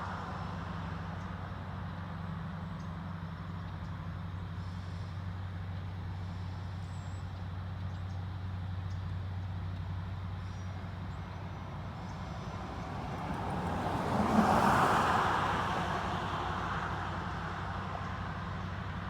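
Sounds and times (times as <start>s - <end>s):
diesel locomotive engines droning: 0.0s - 14.4s.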